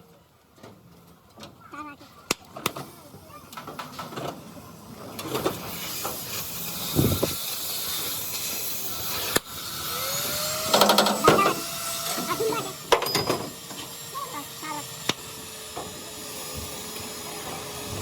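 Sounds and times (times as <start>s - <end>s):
power tool running: 5.6s - 18.0s
voices: 10.8s - 12.9s.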